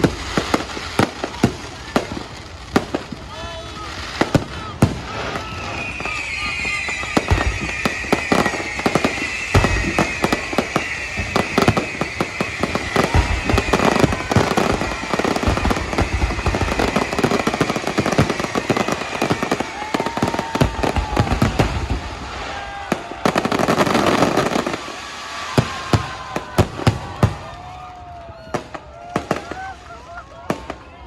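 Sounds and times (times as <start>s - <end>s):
fireworks bangs and crackles: 0.0s - 31.0s
heavy firework booms: 3.9s - 27.8s
high falling whistle: 5.1s - 28.8s.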